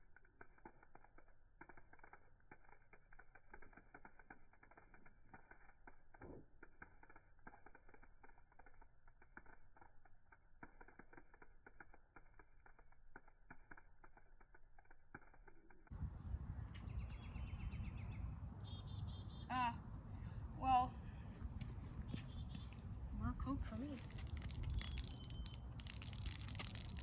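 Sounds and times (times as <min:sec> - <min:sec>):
fizzing crackling and popping: 0:00.0 - 0:15.9, 0:23.4 - 0:27.0.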